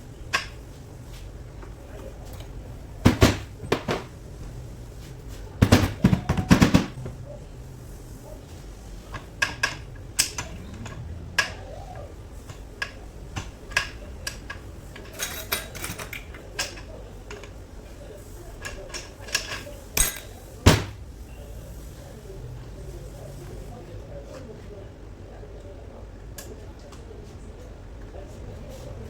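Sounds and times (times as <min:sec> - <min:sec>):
metal tools clinking and knocking: 0:12.4 - 0:17.6, 0:18.6 - 0:21.0.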